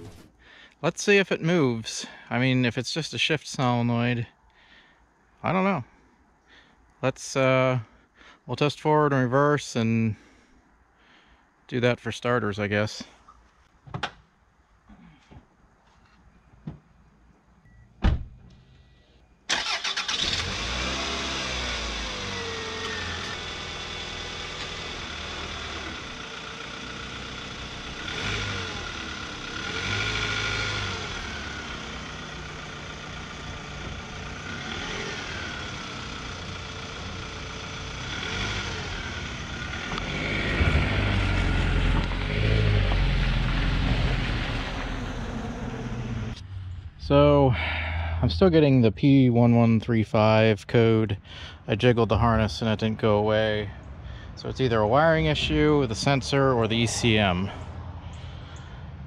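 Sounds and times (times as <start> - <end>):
car engine running: 20.3 - 48.8, 52.2 - 58.8.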